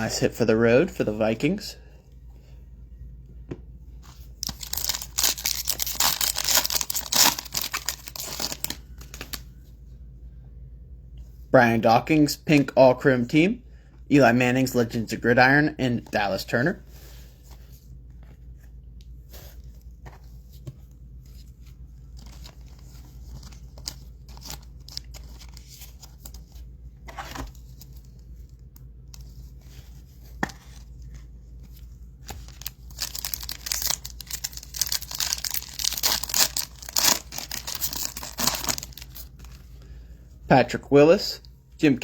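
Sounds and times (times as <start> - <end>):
cards rustling and clicking: 4.0 - 9.5, 17.4 - 39.7
plastic wrapper tearing and crinkling: 4.4 - 9.4, 32.2 - 39.5.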